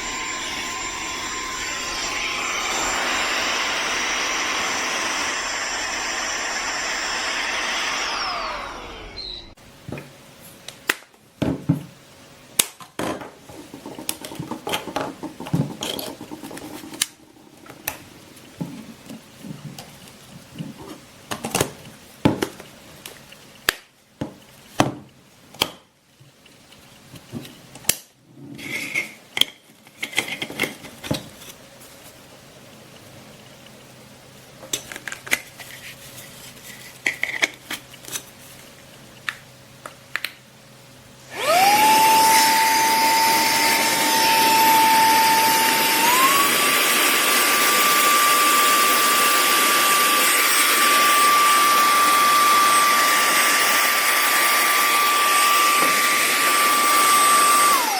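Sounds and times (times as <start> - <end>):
handheld vacuum motor whining: 0.0 - 9.6, 41.2 - 57.9.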